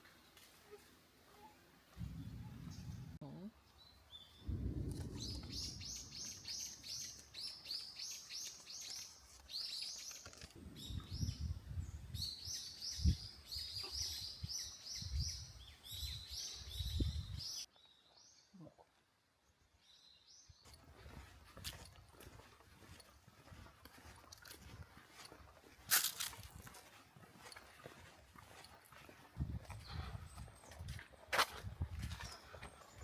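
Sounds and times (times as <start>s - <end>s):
birds chirping: 0.7s - 18.6s.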